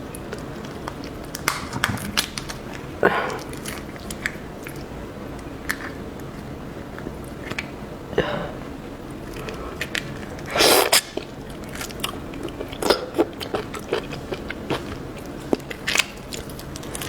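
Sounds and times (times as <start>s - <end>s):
person chewing shrimp: 9.3s - 17.0s.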